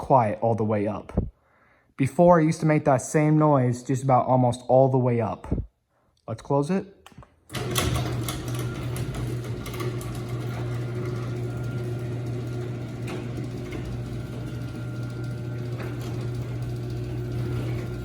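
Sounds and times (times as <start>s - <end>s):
garage door opener motor hum: 7.5s - 18.0s.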